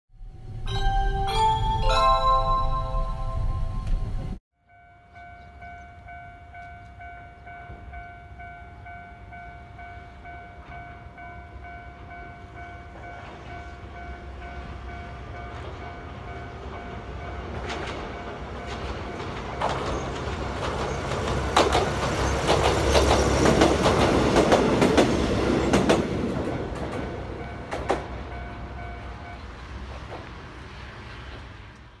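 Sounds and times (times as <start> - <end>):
electric train passing: 0.2 - 32.0
short chime jingle: 0.4 - 7.7
wheels clacking over rail joints: 16.6 - 28.8.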